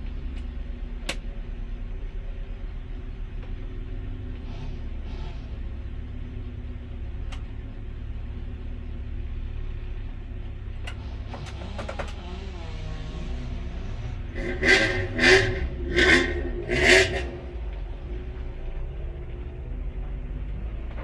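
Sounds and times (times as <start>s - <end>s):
race car engine idling: 0.0s - 21.0s
engine revving in bursts: 10.9s - 17.7s.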